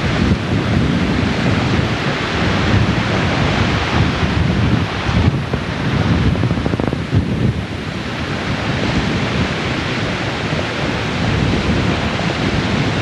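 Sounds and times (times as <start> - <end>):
flood water rushing: 0.0 - 13.0
wind buffeting microphone: 0.0 - 13.0.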